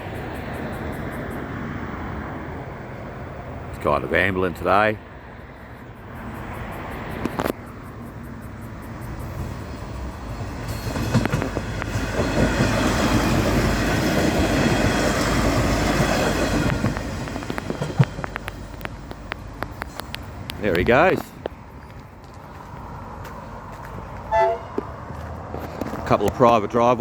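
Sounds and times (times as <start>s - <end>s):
diesel railcar rumbling past: 0.0s - 27.0s
wheel clicks over rail joints: 10.6s - 22.0s.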